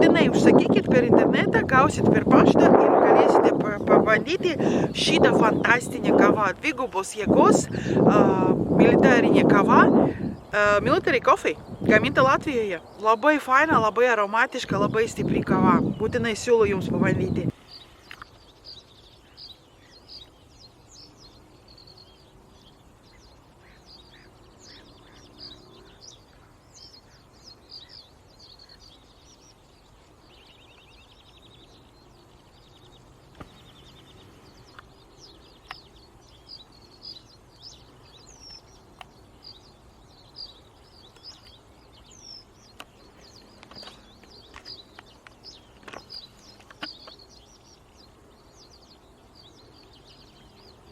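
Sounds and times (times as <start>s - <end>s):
birds chirping and calling: 0.0s - 50.9s
faint clicks: 18.0s - 18.3s, 35.6s - 35.9s.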